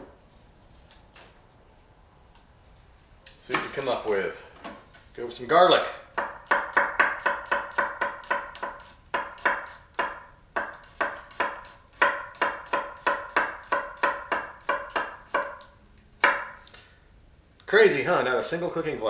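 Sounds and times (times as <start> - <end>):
knife chopping on cutting board: 6.1 - 15.6, 16.2 - 16.6.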